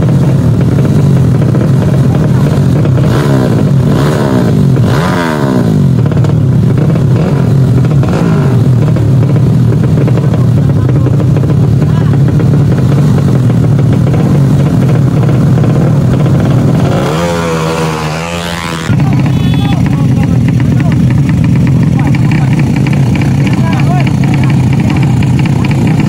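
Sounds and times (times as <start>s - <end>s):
motorcycle engines revving: 0.0s - 26.0s
voices: 10.0s - 13.5s, 16.9s - 26.0s.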